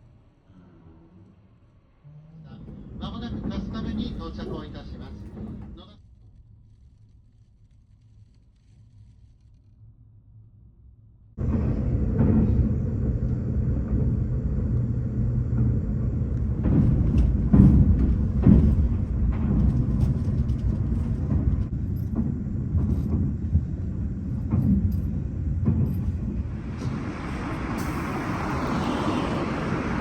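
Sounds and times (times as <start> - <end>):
train rumbling: 0.0 - 6.1, 11.4 - 30.0
sharp knocks and clatters: 11.4 - 27.8.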